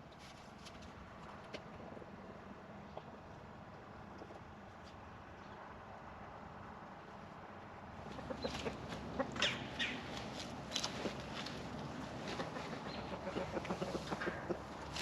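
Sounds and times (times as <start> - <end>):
chickens clucking: 8.0 - 15.0.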